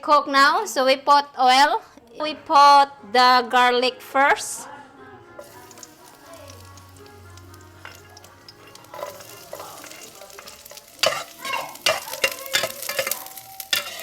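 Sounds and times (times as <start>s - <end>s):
garlic sizzling in hot oil: 5.4s - 14.0s
utensil scraping and clacking on pan: 5.4s - 14.0s.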